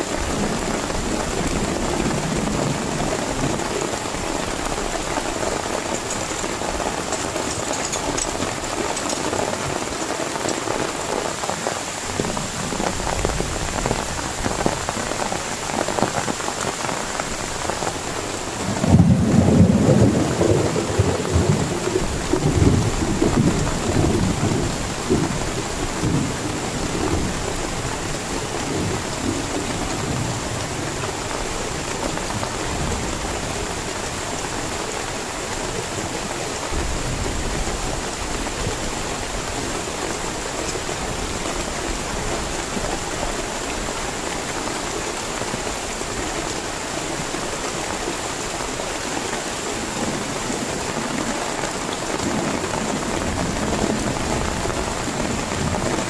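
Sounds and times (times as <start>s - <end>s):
heavy rain pouring: 0.0s - 56.0s
thunder rumbling: 18.2s - 33.4s.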